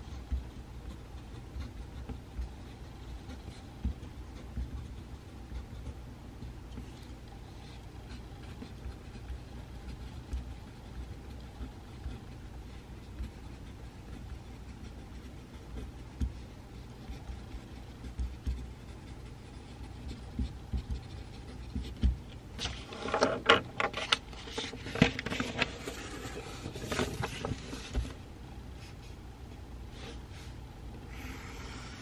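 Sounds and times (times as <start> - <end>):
pencil scratching on paper: 0.0 - 23.3
low room hum: 0.0 - 32.0.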